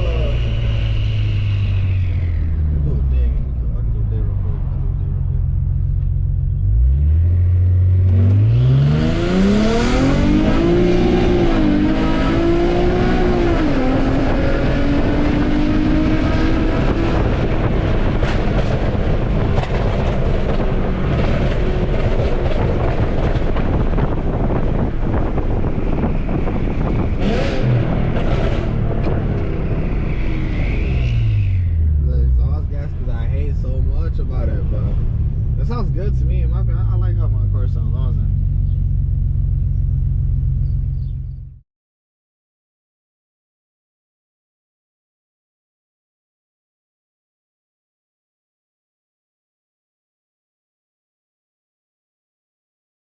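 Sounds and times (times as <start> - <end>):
car engine accelerating: 0.0 - 41.6
road noise: 0.0 - 41.6.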